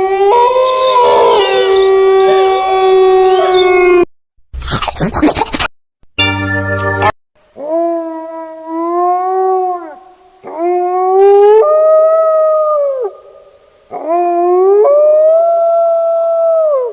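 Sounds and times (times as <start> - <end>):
wolf howling: 0.0 - 4.1.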